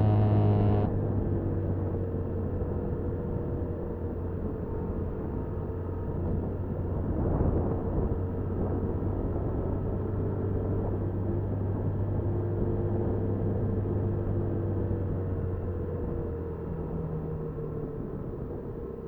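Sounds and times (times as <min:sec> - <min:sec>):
motorbike engine hum: 0:00.0 - 0:04.6
wind and road noise: 0:00.0 - 0:19.0.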